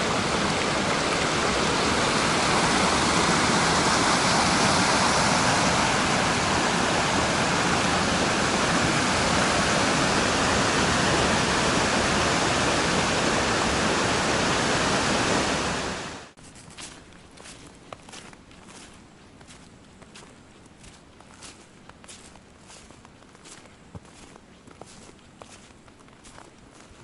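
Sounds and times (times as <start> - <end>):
loud steady rushing noise: 0.0 - 16.4.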